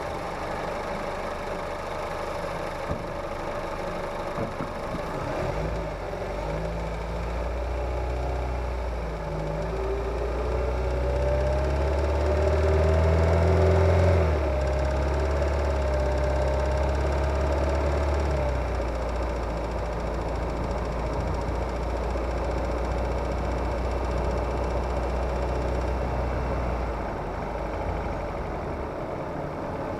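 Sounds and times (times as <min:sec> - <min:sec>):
car engine revving: 0:09.2 - 0:28.4.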